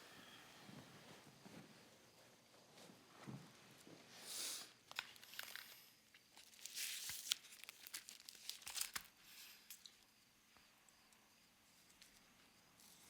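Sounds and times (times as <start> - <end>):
wrapper crinkling and tearing: 4.9 - 9.9.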